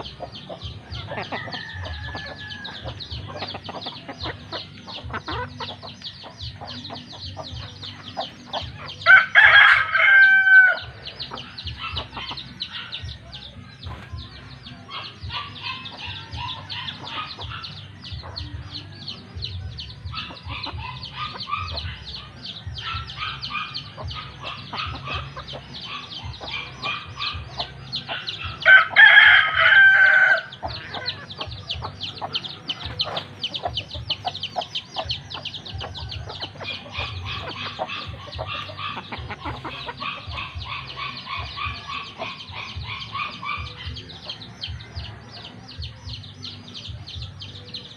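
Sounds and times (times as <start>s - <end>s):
chickens clucking and chirping: 0.0s - 47.9s
rooster crowing: 1.2s - 3.0s, 9.0s - 10.9s, 28.6s - 31.0s.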